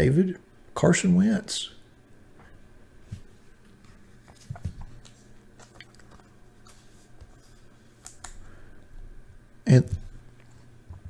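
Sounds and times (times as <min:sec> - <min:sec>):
trading cards clicking and rustling: 0:04.2 - 0:08.5.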